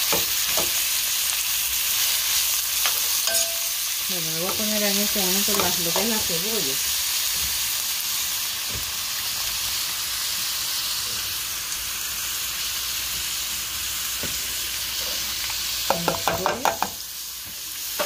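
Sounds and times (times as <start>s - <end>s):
meat sizzling in hot oil: 0.0s - 18.0s
metallic clinks against pot: 2.8s - 3.8s.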